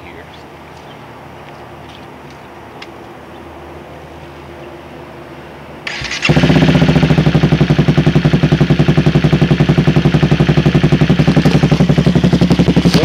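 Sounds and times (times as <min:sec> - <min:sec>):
electric starter cranking: 0:05.9 - 0:06.8
motorcycle engine idling: 0:05.9 - 0:13.0.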